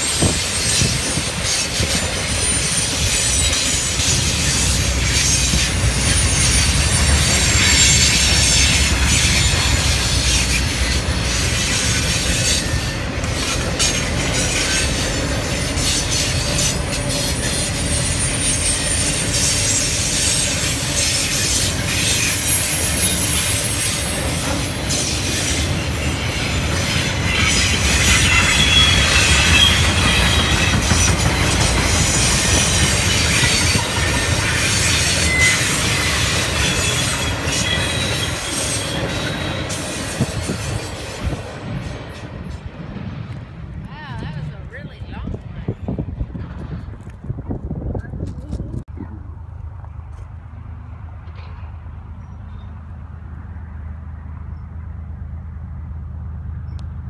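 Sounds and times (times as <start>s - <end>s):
high-pitched wheel squeal: 0.0s - 41.4s
steel wheels rumbling on rails: 0.0s - 48.9s.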